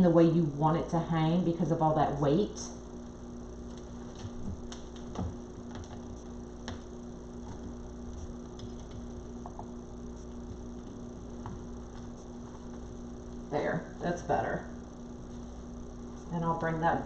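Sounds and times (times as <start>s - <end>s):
electrical hum: 0.0s - 17.0s
faint clicks and knocks: 3.7s - 13.4s.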